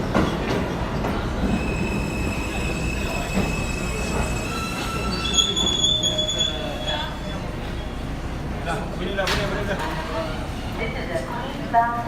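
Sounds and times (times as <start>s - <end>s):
train rumble: 0.0s - 12.0s
train wheels squealing: 1.5s - 8.0s.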